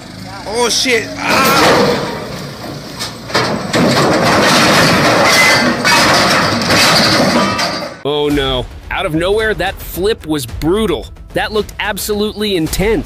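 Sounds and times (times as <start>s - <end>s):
truck crashing and scraping: 0.0s - 8.0s.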